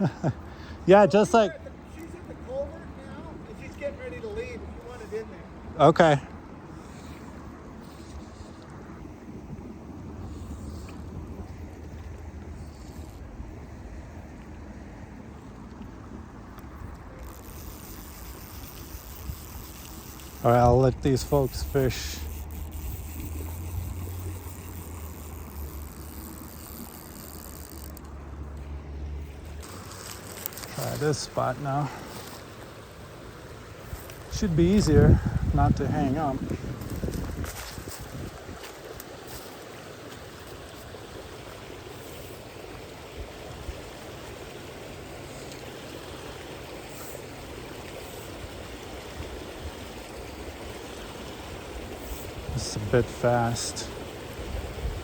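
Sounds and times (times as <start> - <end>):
faint outdoor hiss: 0.0 - 55.0
wind rumbling on microphone: 6.8 - 28.0, 33.6 - 39.4, 54.2 - 55.0
creek water rushing over rocks: 11.0 - 55.0.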